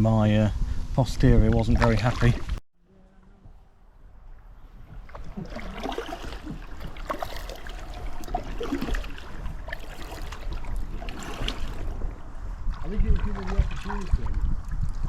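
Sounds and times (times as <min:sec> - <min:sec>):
wind rumble on microphone: 0:00.0 - 0:02.6, 0:03.3 - 0:15.0
kayak paddle strokes: 0:04.6 - 0:14.1
water splashing and dripping: 0:04.8 - 0:15.0.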